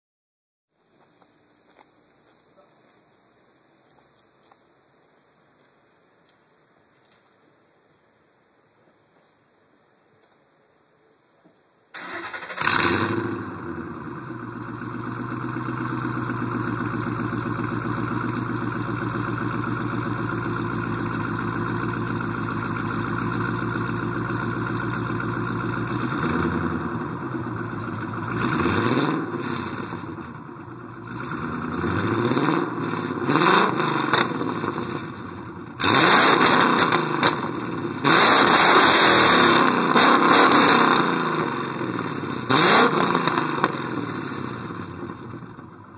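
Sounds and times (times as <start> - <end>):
car engine idling and revving: 12.0 - 45.9.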